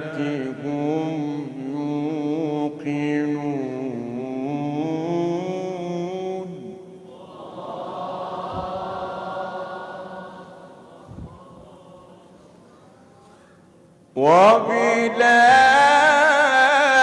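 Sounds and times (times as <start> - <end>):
man reciting melodically: 0.0 - 7.1, 14.0 - 17.0
soft long held vocal tone: 0.0 - 13.1.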